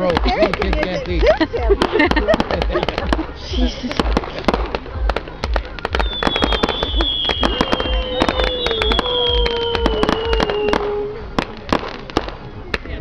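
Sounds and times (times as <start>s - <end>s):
fireworks crackling pops: 0.0s - 13.0s
fireworks low thuds: 0.0s - 13.0s
falling whistling tone: 5.9s - 11.3s.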